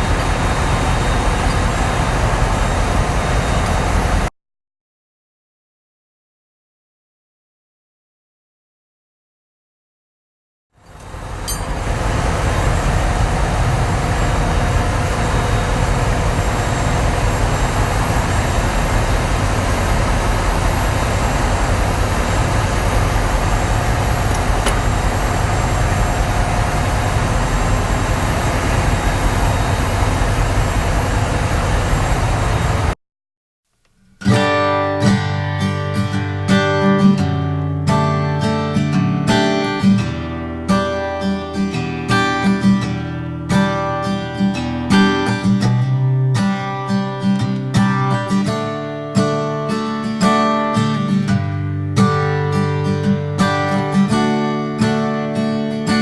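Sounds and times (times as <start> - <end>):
diesel generator running: 0.0 - 4.3, 10.8 - 33.0, 34.3 - 56.0
strummed acoustic guitar music: 34.0 - 56.0.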